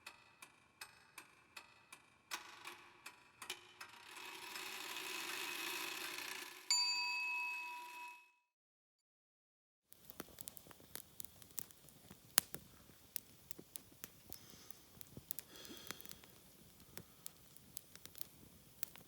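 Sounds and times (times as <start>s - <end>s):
clock-like ticking: 0.0s - 6.4s
bright bell ding: 6.7s - 8.3s
hiss: 10.0s - 19.0s.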